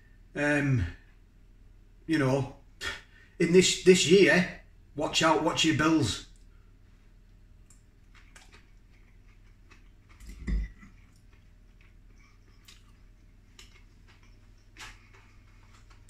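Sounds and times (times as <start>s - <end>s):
quiet chewing: 6.3s - 16.0s.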